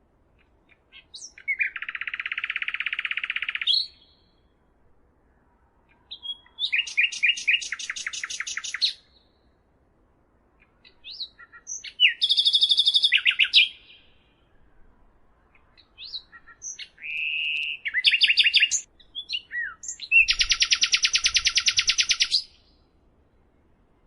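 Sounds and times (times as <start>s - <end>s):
songbird singing trills: 0.4s - 4.6s, 5.8s - 9.6s, 10.6s - 14.7s, 15.5s - 23.7s
bird whistle: 6.2s - 9.1s, 11.1s - 14.2s, 16.0s - 22.8s.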